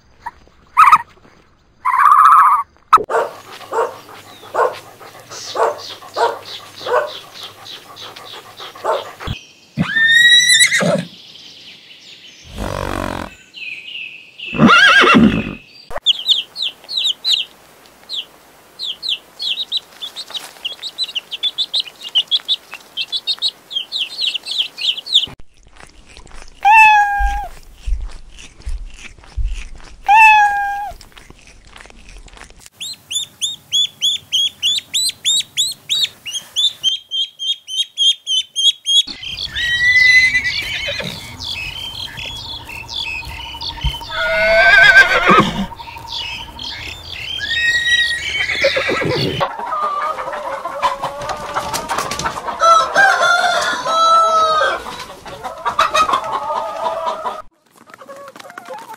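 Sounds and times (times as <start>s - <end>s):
rapid high bird chirping: 3.7s - 10.8s, 32.8s - 49.4s
horse whinnying: 9.8s - 11.1s, 12.5s - 13.4s, 14.5s - 15.6s, 39.6s - 41.2s, 44.1s - 45.7s, 47.4s - 49.5s
cat meowing: 26.6s - 27.6s, 30.1s - 31.0s.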